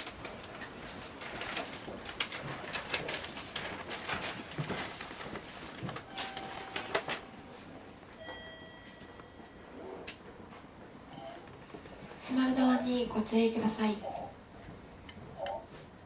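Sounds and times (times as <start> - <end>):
low background noise: 0.0 - 16.0
faint high beep: 8.2 - 9.6.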